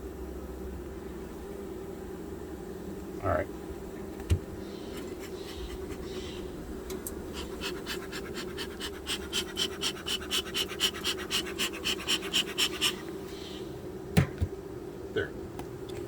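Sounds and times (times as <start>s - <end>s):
bees humming: 1.2s - 16.0s
quick rhythmic rasping: 5.0s - 6.4s, 7.3s - 13.1s.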